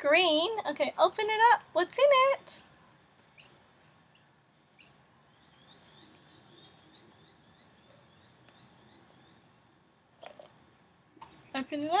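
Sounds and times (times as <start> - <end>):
background hiss: 0.0 - 12.0
bird chirping: 3.2 - 9.6.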